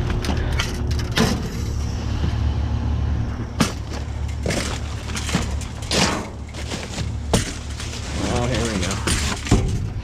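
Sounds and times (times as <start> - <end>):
steady low rumble: 0.0 - 10.0
rustling scrape: 4.4 - 9.5
junk knocking in a dumpster: 9.0 - 10.0.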